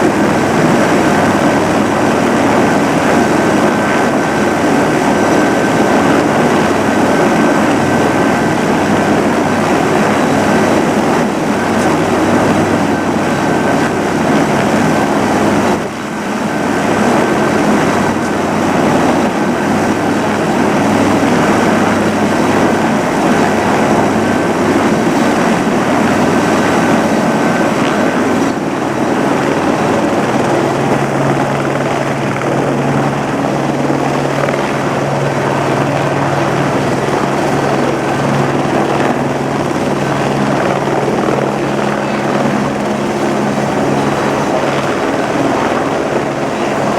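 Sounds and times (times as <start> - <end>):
helicopter turbine and rotor: 0.0 - 46.9.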